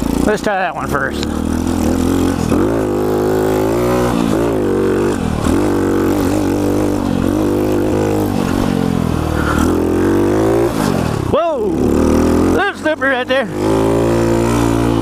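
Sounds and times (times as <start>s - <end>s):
pit bike engine revving: 0.0s - 15.0s.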